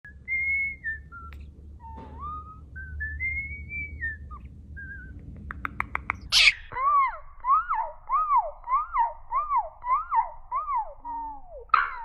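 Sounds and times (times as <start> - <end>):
sharp clicks: 5.3 - 6.3.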